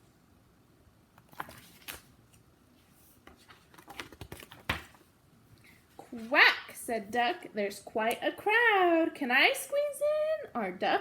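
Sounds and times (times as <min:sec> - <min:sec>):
book pages rustling: 0:01.1 - 0:06.3.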